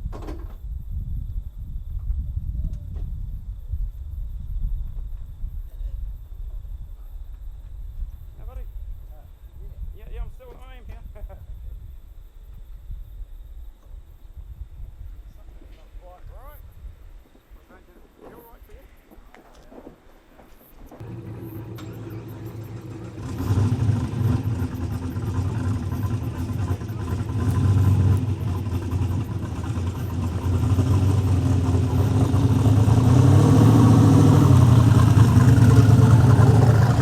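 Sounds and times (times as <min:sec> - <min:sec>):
car engine idling: 0:21.0 - 0:37.0.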